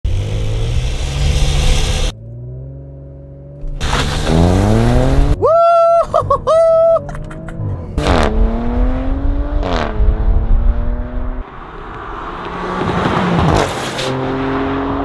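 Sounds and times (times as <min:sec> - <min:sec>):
car engine accelerating hard: 0:00.1 - 0:05.4, 0:07.2 - 0:15.0
car passing by: 0:11.4 - 0:15.0.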